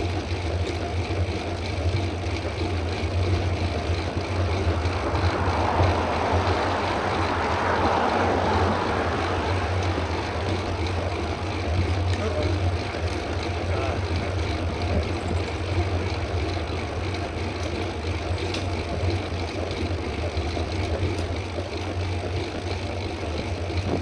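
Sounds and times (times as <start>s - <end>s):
low rumble: 3.3s - 19.4s
wind on microphone: 23.8s - 24.0s.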